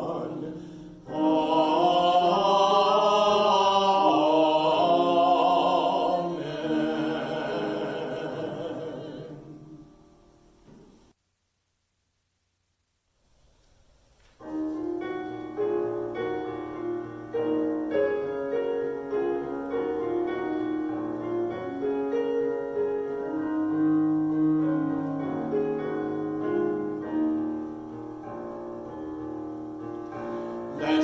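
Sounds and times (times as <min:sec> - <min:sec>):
slow solo piano: 0:14.2 - 0:31.0.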